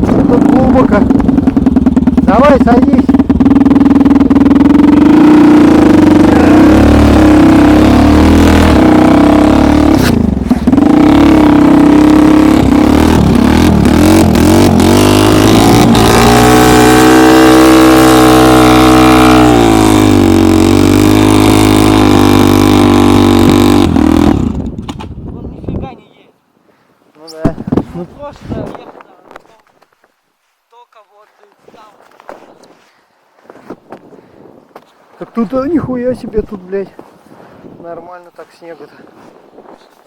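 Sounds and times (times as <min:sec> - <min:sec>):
snowmobile engine revving: 0:00.0 - 0:24.8.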